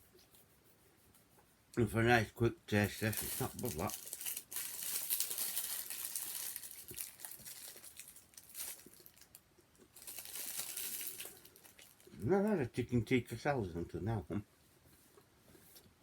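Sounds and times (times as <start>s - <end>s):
packaging crinkling and rustling: 2.7s - 12.2s.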